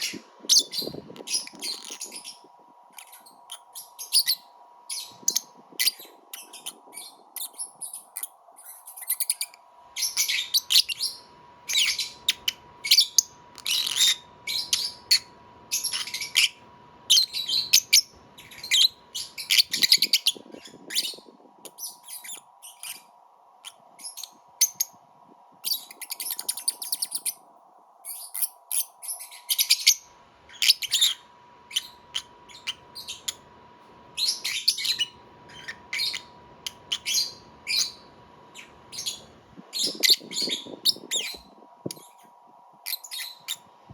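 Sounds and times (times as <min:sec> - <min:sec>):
lovebird chirping: 0:00.0 - 0:25.0, 0:25.6 - 0:27.4, 0:28.0 - 0:33.5, 0:34.1 - 0:43.7
faint steady hum: 0:00.0 - 0:43.9.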